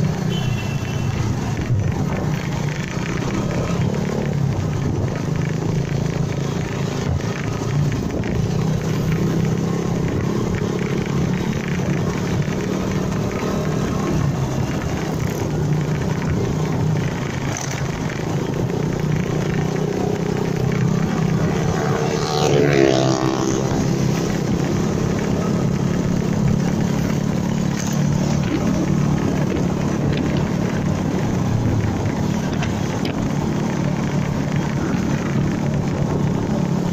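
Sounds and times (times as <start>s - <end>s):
motorcycle engine running: 0.0s - 36.9s
road noise: 0.0s - 36.9s
vehicle passing by: 19.9s - 36.9s.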